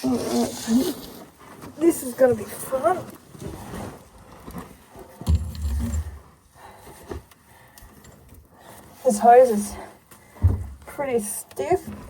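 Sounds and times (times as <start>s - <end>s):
hose rubbing: 0.0s - 1.3s
low rumbling thump: 5.2s - 6.2s.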